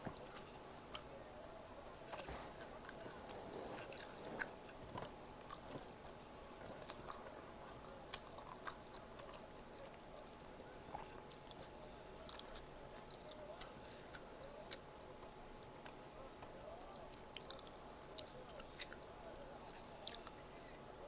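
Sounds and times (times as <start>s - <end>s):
person chewing food: 0.1s - 1.2s, 2.0s - 15.2s, 17.3s - 20.4s.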